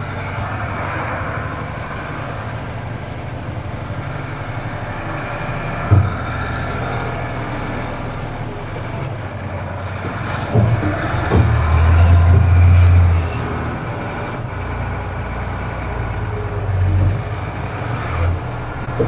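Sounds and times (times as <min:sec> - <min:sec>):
truck diesel engine running: 0:00.0 - 0:19.0
thump: 0:10.3 - 0:13.1.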